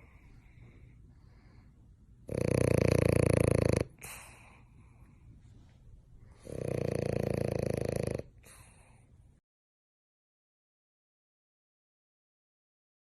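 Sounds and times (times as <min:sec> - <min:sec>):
dog snoring: 0:02.2 - 0:04.6, 0:06.3 - 0:09.0.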